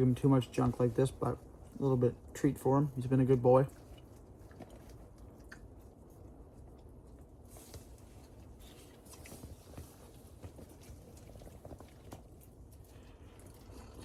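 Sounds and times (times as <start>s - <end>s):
person chewing cookie crunching: 11.9s - 14.0s.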